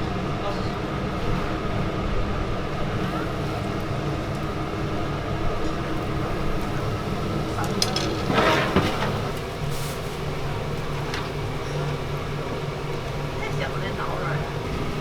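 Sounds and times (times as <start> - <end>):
kitchen hum and rumble: 0.0 - 15.0.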